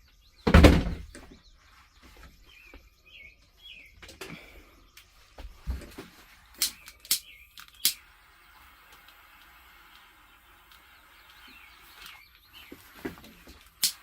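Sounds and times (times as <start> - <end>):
birds chirping: 0.0 - 14.0
dull thump: 0.4 - 1.3.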